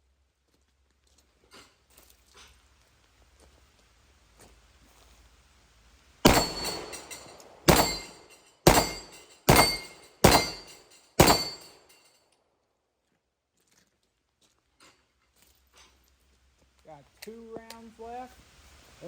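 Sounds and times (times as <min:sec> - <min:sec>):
pistol shots echoing: 0:06.3 - 0:11.9.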